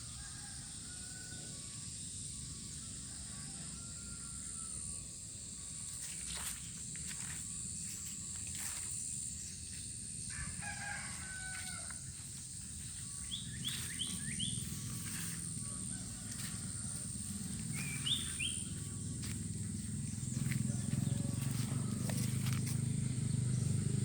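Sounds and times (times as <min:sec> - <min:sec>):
rooster crowing: 0:00.0 - 0:01.8, 0:02.7 - 0:05.1, 0:10.2 - 0:24.0
constant high whine: 0:00.0 - 0:24.0
high bird chirps: 0:17.7 - 0:18.8.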